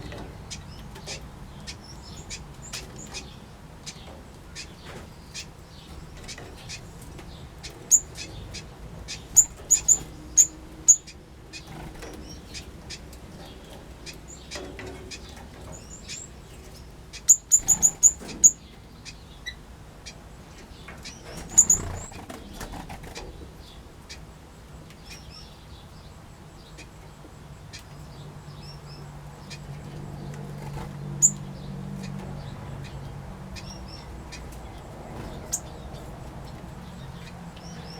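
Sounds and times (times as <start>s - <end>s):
small birds chirping: 0.0s - 37.9s.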